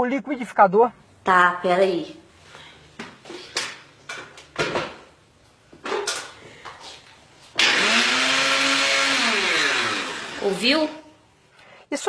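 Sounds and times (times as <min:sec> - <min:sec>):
electric blender running: 0:07.6 - 0:11.0.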